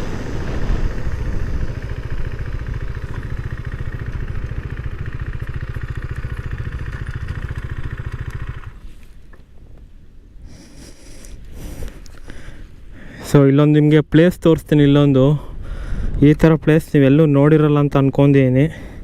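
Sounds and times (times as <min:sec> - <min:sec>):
vehicle engine running: 0:00.0 - 0:09.4.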